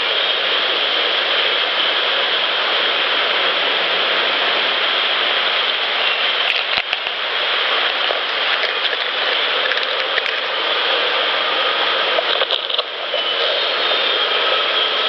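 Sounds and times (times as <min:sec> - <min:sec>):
loud outdoor hiss: 0:00.0 - 0:15.0.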